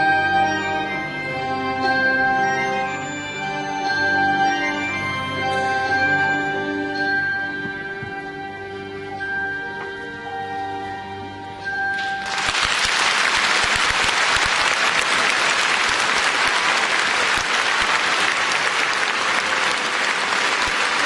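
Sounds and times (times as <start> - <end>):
audience applause: 12.0 - 21.0.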